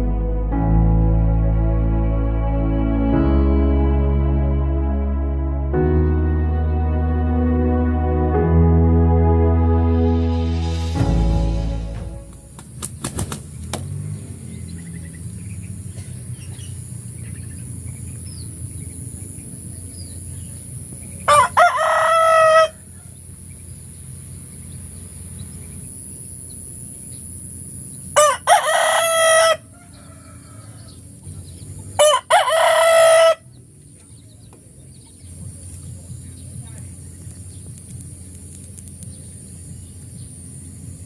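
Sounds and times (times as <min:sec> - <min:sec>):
rooster crowing: 0:21.3 - 0:23.1, 0:28.2 - 0:31.1, 0:32.0 - 0:33.6.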